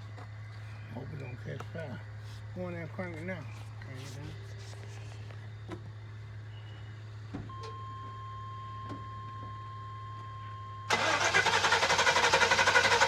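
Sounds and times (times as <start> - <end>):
starter cranking engine: 10.9 - 13.0.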